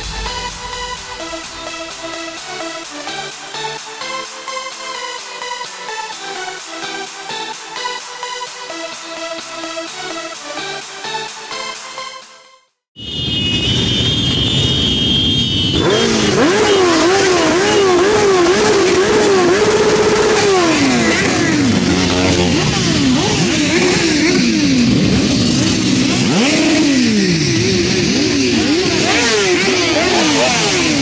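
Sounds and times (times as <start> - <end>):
steady high tone: 0.0 - 2.7
motorcycle engines revving: 13.3 - 31.0.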